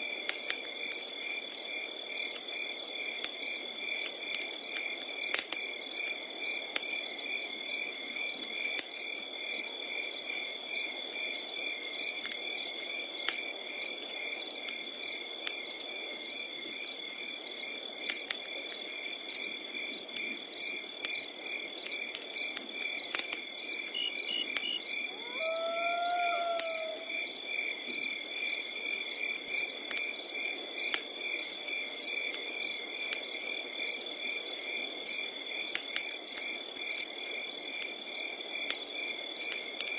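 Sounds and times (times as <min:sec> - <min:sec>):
campfire crackling and popping: 0:00.0 - 0:39.9
crickets chirping: 0:00.1 - 0:39.9
animal call: 0:24.0 - 0:27.3.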